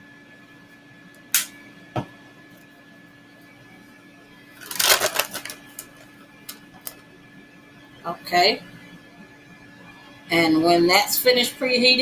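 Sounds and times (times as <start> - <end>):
air fryer humming: 0.0 - 12.0
kitchenware rattling and clattering: 4.6 - 6.0.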